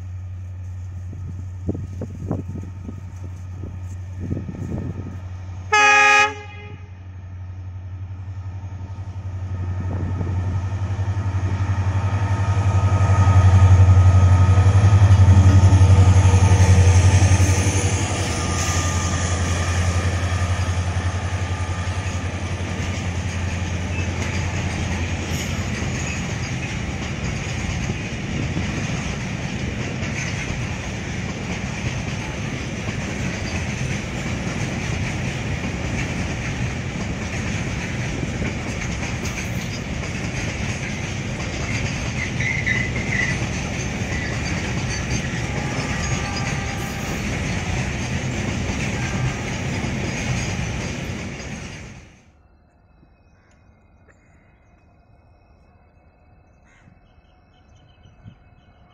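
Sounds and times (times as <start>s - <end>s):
diesel engine drone: 0.0s - 25.2s
train horn blast: 5.6s - 7.1s, 45.0s - 50.0s
wagons rumbling with wheel noise: 9.1s - 52.3s.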